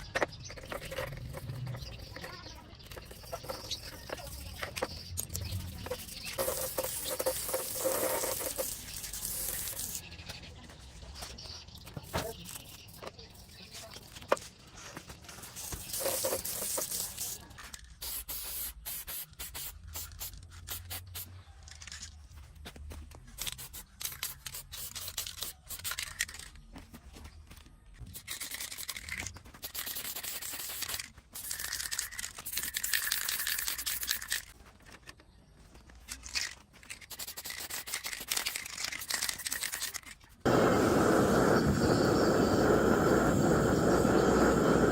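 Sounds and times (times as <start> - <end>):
hand scraping and rubbing a part: 0.0 - 10.0, 13.9 - 17.8
hissing: 40.5 - 44.9.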